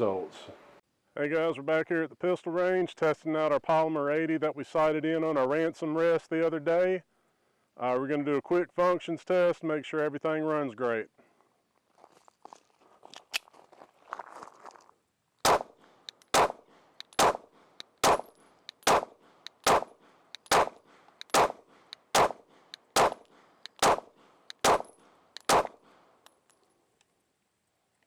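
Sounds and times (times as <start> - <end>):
pistol shots: 15.5 - 25.8.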